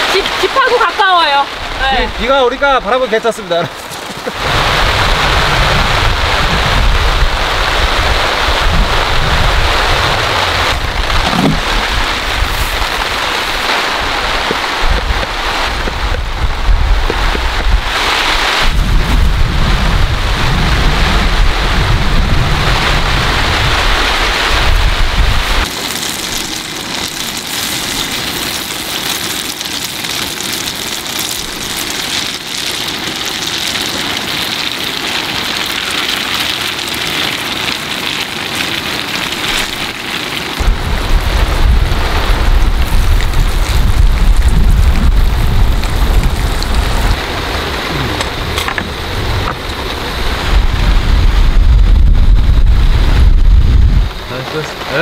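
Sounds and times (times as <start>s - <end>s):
heavy rain falling: 0.0s - 55.0s
wind buffeting microphone: 4.4s - 25.7s, 40.6s - 55.0s.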